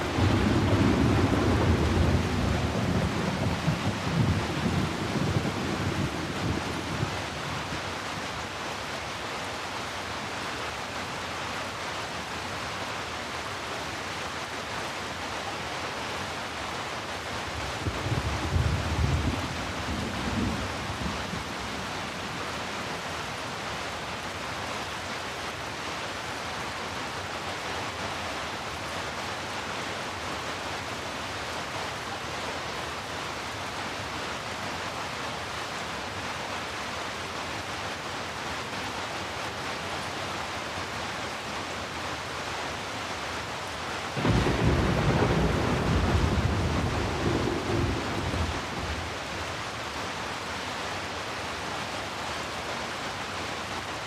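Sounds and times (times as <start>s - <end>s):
steady rain hiss: 0.0s - 54.0s
rumble of thunder: 0.1s - 7.3s, 17.6s - 22.3s, 44.2s - 49.3s.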